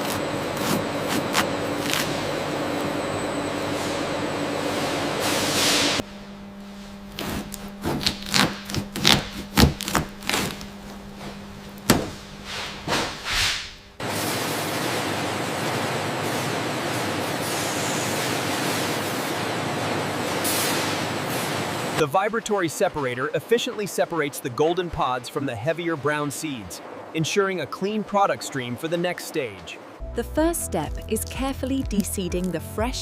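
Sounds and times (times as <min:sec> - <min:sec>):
steady low hum: 0:00.0 - 0:14.3
steady machinery noise: 0:00.0 - 0:30.0
knocks and thuds: 0:11.8 - 0:13.2.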